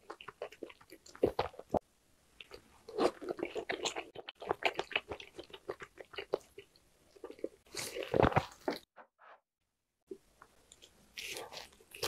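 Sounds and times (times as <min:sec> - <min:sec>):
close chewing with mouth clicks: 0:00.0 - 0:01.8, 0:02.4 - 0:08.9.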